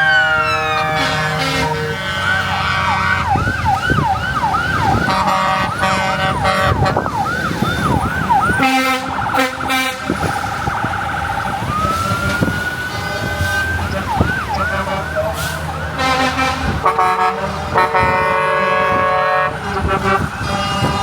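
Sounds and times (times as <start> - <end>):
loud vehicle horn blast: 0.0 - 3.2, 5.1 - 7.0, 8.6 - 10.1, 16.0 - 21.0
emergency vehicle siren: 0.0 - 21.0.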